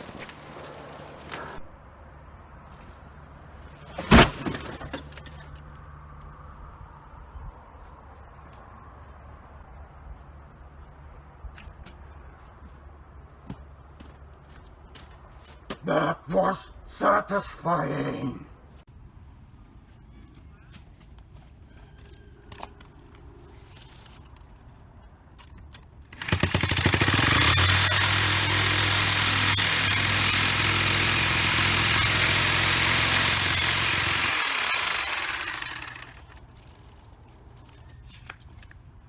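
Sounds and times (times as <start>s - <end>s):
small engine running with hiss: 26.2s - 36.4s.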